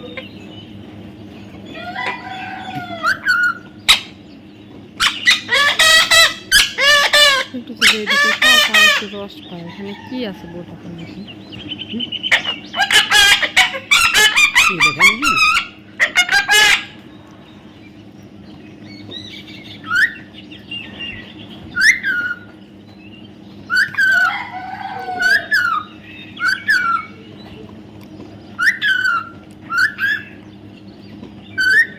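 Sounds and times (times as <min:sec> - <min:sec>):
parrot squawking: 0:01.8 - 0:04.2, 0:05.0 - 0:10.1, 0:11.7 - 0:17.0, 0:21.8 - 0:22.5, 0:23.7 - 0:27.2, 0:28.6 - 0:30.4, 0:31.5 - 0:31.9
parrot chirping: 0:05.0 - 0:09.2, 0:11.2 - 0:17.0, 0:23.7 - 0:27.2, 0:28.6 - 0:30.4, 0:31.5 - 0:31.9.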